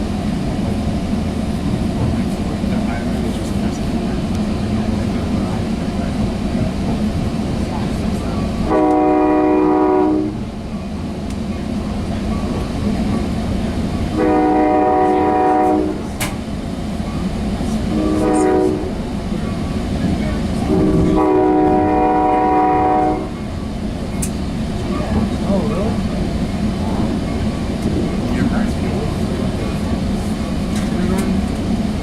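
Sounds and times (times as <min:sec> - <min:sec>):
moving train rumble: 0:00.0 - 0:32.0
train horn chord: 0:08.6 - 0:10.4, 0:14.2 - 0:16.1, 0:17.9 - 0:19.0, 0:20.7 - 0:23.4.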